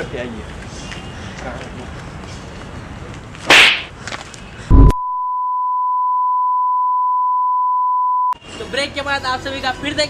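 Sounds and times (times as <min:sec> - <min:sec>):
quick swoosh: 0:03.5 - 0:03.9
steady high-pitched beep tone: 0:04.7 - 0:08.4.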